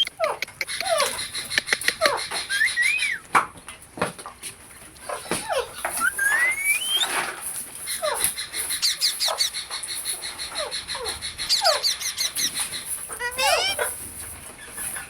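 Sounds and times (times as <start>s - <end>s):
parrot whistling: 0.0s - 1.0s, 1.6s - 3.3s, 6.0s - 7.2s, 13.2s - 13.8s
high quick chirps: 0.0s - 3.2s, 6.0s - 7.1s
parrots squawking: 0.0s - 3.3s, 5.1s - 14.1s.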